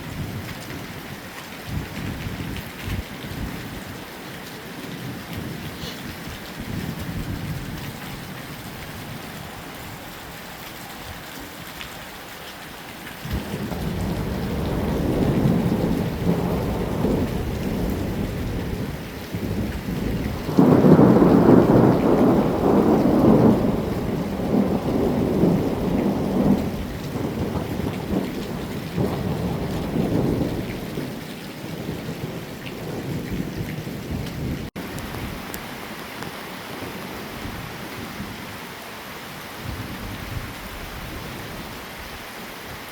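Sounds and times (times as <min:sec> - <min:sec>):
heavy rain falling: 0:00.0 - 0:42.9
thunder rumbling: 0:01.7 - 0:09.9, 0:13.2 - 0:35.6.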